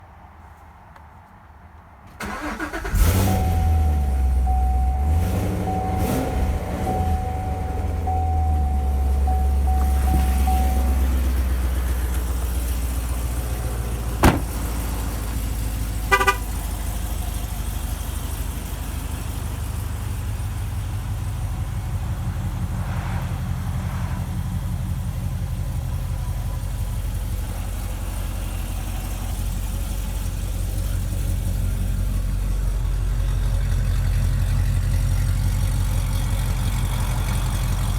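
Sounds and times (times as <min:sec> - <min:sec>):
car engine idling: 0:02.2 - 0:37.9
short beeping chirp: 0:03.3 - 0:11.2.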